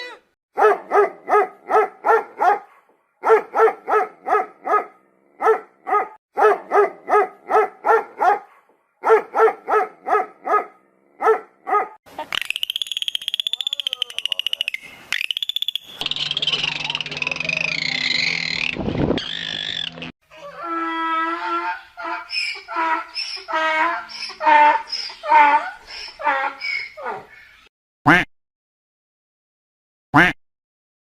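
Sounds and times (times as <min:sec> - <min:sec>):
high-pitched pulsing trill: 0:15.2 - 0:20.1.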